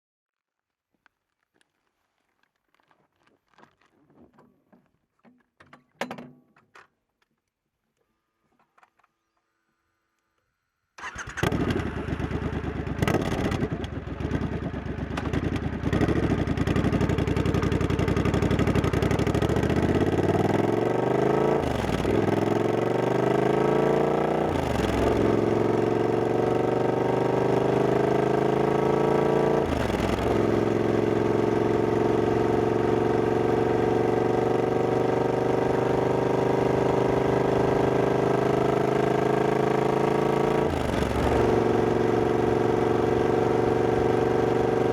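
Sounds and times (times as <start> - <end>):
motorcycle engine revving: 11.0 - 44.9.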